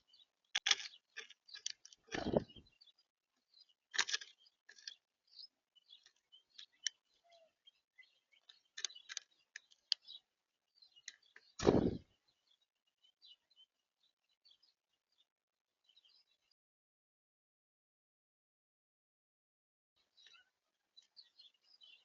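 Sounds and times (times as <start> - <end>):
small birds chirping: 0.0 - 16.6, 20.0 - 22.0
loud thump: 11.6 - 12.0.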